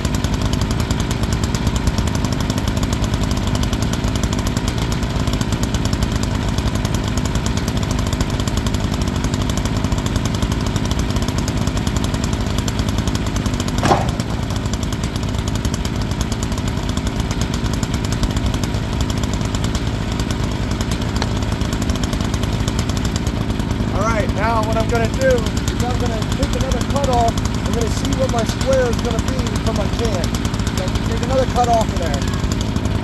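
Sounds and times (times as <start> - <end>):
sawmill engine running: 0.0 - 33.0
sharp knock: 13.8 - 14.8.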